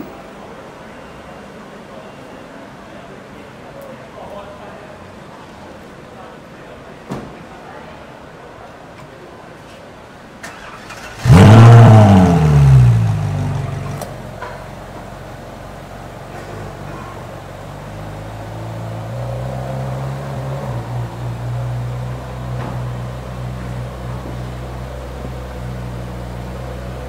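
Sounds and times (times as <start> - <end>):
car engine starting and revving: 10.4 - 14.3, 16.3 - 27.0
car engine idling: 10.5 - 27.0.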